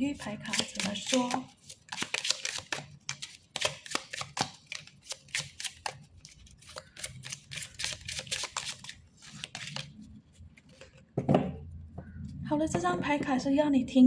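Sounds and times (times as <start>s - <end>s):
cards being shuffled: 0.2s - 10.0s.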